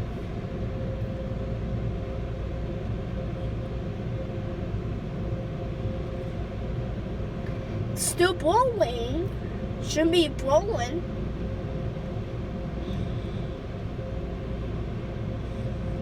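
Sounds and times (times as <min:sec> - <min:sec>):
constant hum: 0:00.0 - 0:16.0.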